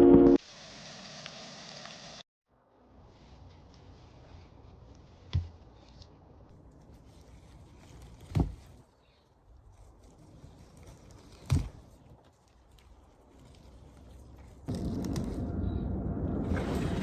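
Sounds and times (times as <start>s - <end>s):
faint low rumble: 14.7s - 17.0s.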